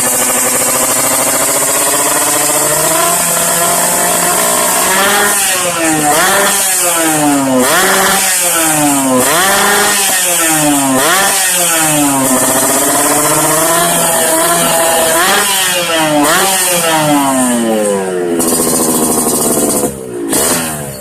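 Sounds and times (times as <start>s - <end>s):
two-stroke motorcycle engine revving: 0.0s - 21.0s.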